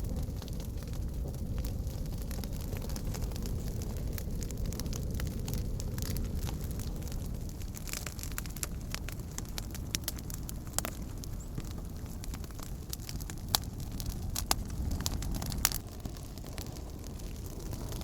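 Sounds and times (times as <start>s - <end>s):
campfire crackling: 0.0s - 18.0s
steady low rumble: 0.0s - 18.0s.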